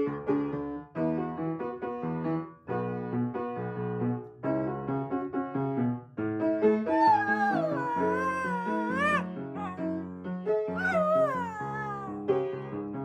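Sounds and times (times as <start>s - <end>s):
dog howling: 6.9s - 10.0s, 10.8s - 12.2s.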